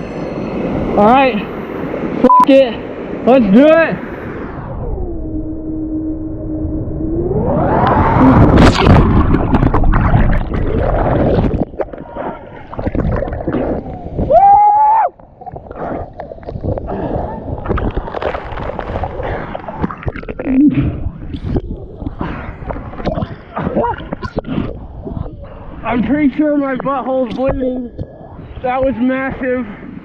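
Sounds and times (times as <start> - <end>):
splash and gurgling water: 8.2 - 14.3, 15.2 - 24.8.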